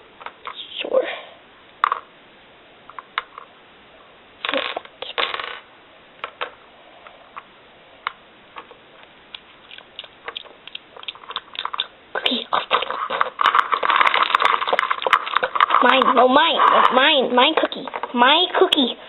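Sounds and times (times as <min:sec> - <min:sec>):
plastic toys clicking: 0:09.3 - 0:18.8
rustling scrapes: 0:12.3 - 0:18.2.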